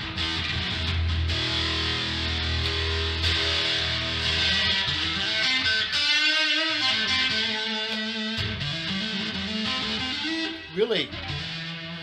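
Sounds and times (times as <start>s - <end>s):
electric guitar through amplifier: 0.0s - 12.0s.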